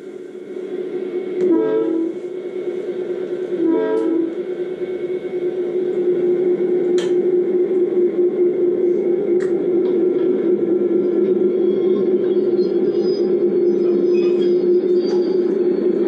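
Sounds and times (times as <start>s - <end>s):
locomotive running hum: 0.0s - 16.0s
locomotive horn blasts: 1.4s - 2.2s, 3.6s - 4.4s.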